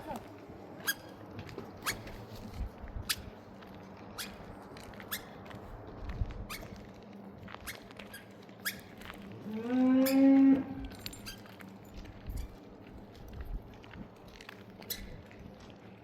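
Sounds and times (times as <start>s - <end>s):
cow mooing: 9.4s - 10.8s.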